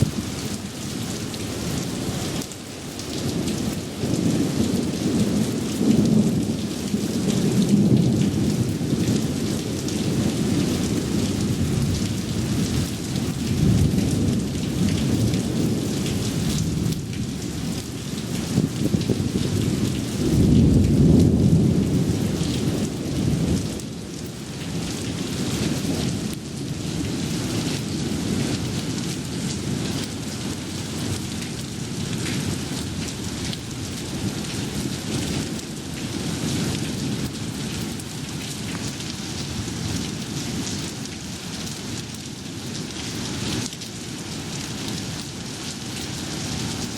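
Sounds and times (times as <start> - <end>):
thunder rumbling: 0.0 - 0.6, 3.2 - 24.0
heavy rain pouring: 0.0 - 46.9.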